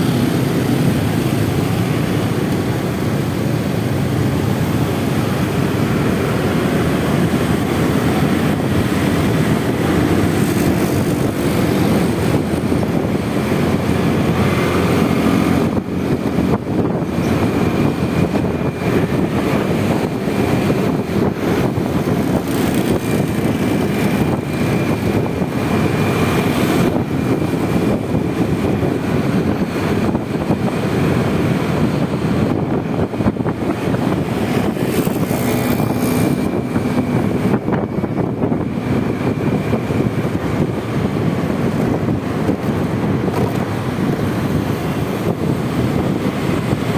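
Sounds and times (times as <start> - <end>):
road noise: 0.0 - 46.9
rushing wind: 0.0 - 46.9
scooter engine running: 0.0 - 46.9.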